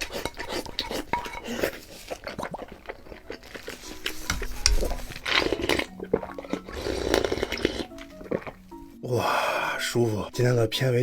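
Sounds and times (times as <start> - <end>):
spoon scraping in a bowl: 0.0 - 8.6
person chewing: 0.0 - 9.0
background music: 0.0 - 11.0.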